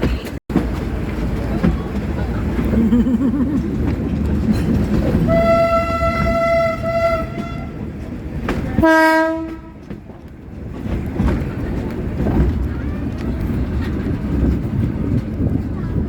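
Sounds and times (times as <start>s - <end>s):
rumble of moving train: 0.0s - 16.0s
locomotive horn blasts: 5.2s - 7.8s, 8.8s - 9.8s.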